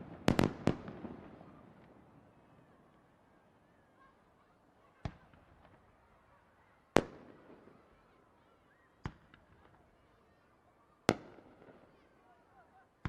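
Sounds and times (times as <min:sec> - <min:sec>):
fireworks bangs with echo: 0:00.0 - 0:02.0, 0:11.1 - 0:11.8.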